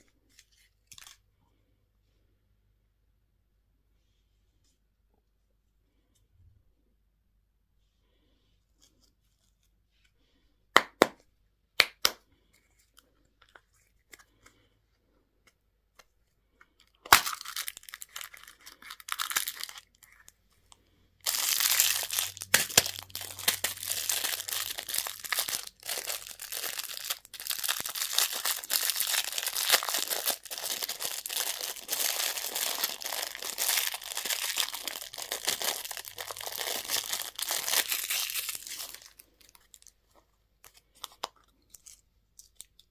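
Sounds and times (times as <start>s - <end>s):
packaging tearing and crinkling: 17.1s - 20.3s, 21.3s - 39.9s.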